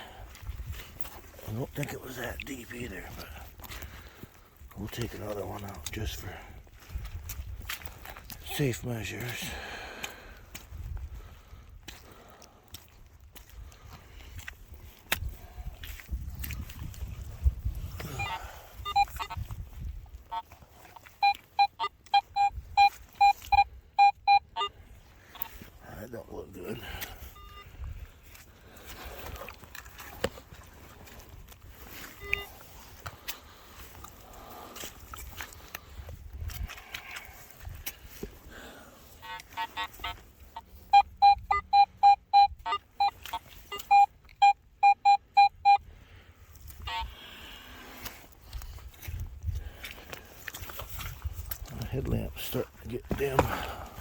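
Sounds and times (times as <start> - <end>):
digging and scraping in soil: 0.0 - 24.0, 24.8 - 41.0, 46.4 - 54.0
metal detector beeping: 18.0 - 19.4, 20.2 - 25.6, 27.2 - 27.9, 32.0 - 32.6, 39.2 - 45.8.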